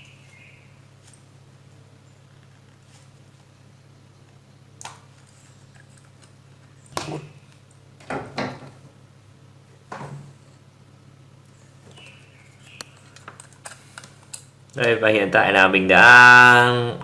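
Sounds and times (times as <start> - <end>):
steady low hum: 0.0 - 17.0
hands clicking and scraping parts: 12.6 - 15.0.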